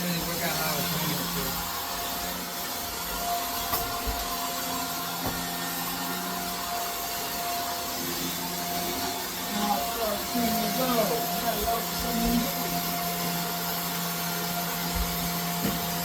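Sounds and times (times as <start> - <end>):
vacuum cleaner whining: 0.0 - 16.0.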